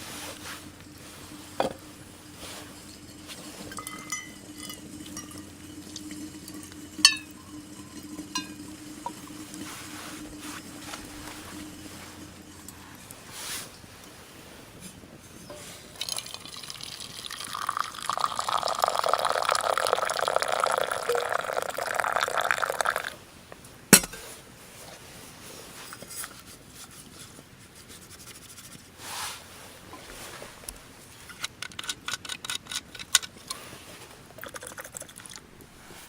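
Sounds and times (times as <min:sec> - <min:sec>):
liquid pouring into container: 0:00.8 - 0:13.2, 0:15.8 - 0:23.2.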